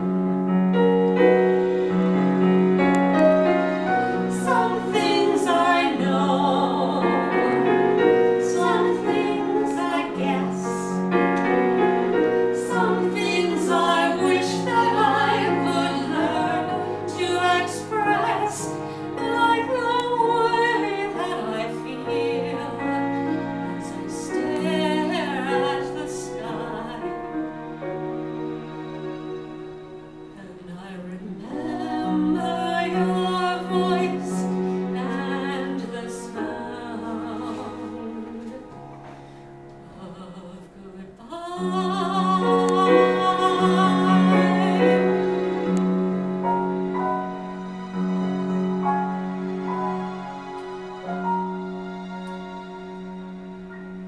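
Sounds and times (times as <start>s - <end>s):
person singing with vibrato: 4.1s - 11.0s, 39.8s - 45.7s.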